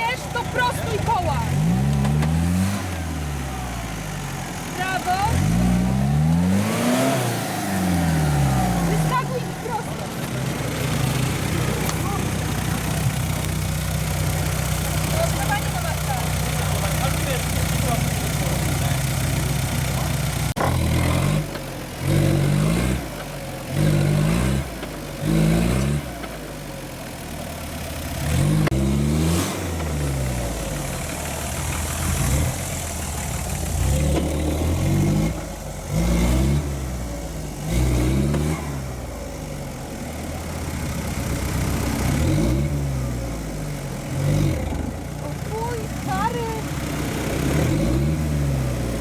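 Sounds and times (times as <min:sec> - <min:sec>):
car engine revving in bursts: 0:00.0 - 0:49.0.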